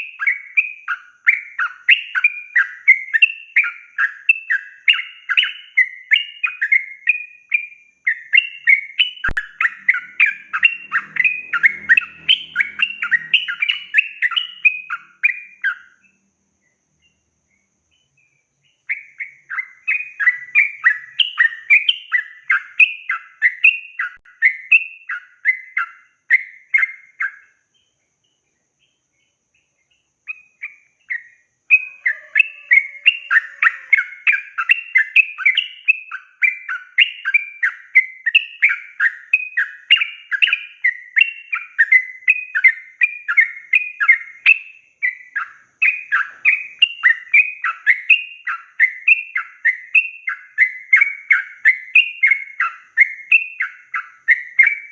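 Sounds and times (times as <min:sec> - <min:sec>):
bulbul singing rapid notes: 0:08.2 - 0:15.8.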